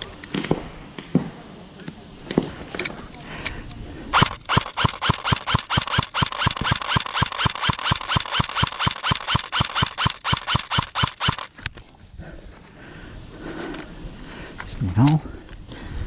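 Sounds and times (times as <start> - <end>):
rapid sharp knocks: 4.2 - 11.5.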